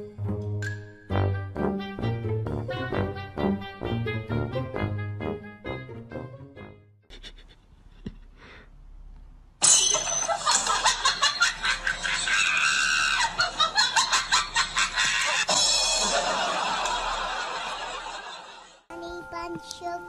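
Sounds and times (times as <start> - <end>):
person laughing hard: 7.1 - 8.4, 10.5 - 17.9.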